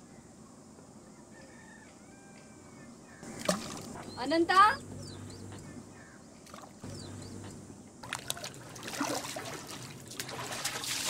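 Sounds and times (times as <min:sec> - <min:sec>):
water trickling and splashing: 0:03.3 - 0:04.6, 0:06.4 - 0:11.0
footsteps through shallow water: 0:06.4 - 0:11.0.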